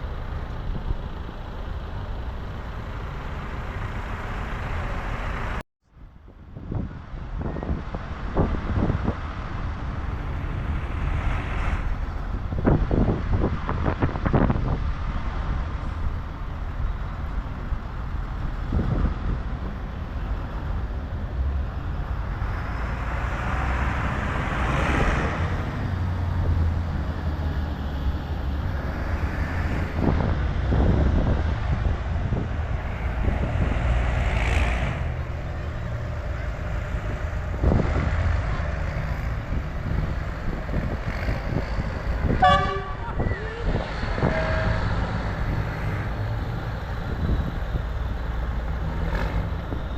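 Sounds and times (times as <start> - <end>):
tractor engines rumbling: 0.0 - 49.9
horn tooting: 42.2 - 45.1.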